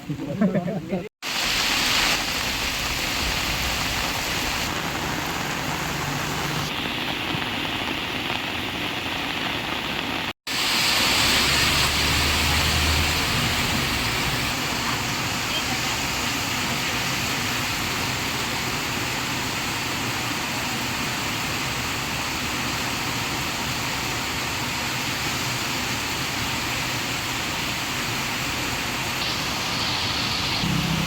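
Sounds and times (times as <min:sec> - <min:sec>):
heavy rain pouring: 0:01.2 - 0:31.0.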